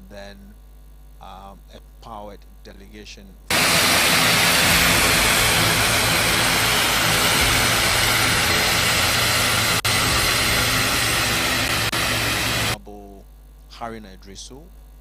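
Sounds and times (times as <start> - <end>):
aircraft engine running: 3.5 - 12.8.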